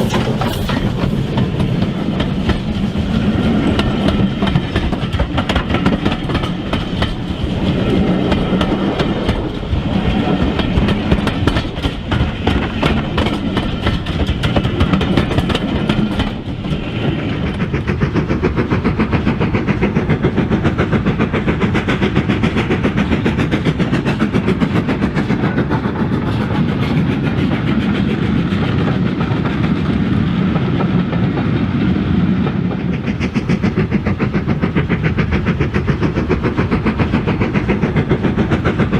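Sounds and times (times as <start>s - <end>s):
wheel clicks over rail joints: 0.0s - 19.2s
model train rolling rumble: 0.0s - 38.9s.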